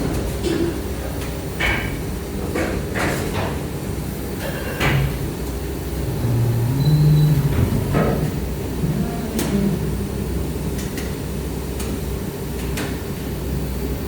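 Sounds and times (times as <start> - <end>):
machine low hum: 5.1 - 14.0.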